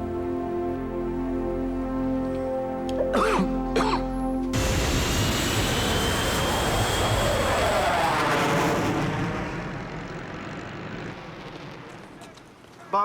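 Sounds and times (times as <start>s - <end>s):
jet engine roar with falling whine: 4.5s - 13.0s.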